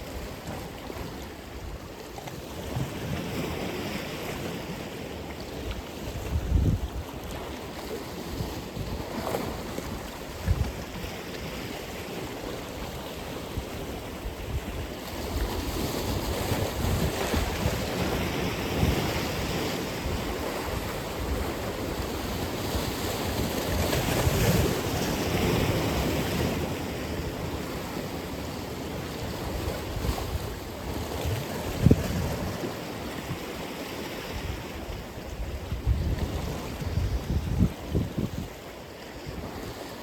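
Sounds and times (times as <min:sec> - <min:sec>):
wind buffeting microphone: 0:06.0 - 0:11.9, 0:13.5 - 0:28.1, 0:29.0 - 0:38.7.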